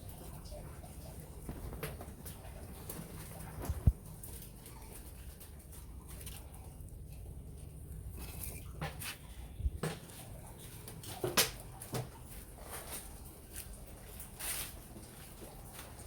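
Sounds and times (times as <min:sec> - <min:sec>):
wood fire pops and crackles: 0:01.4 - 0:04.6, 0:08.5 - 0:12.2.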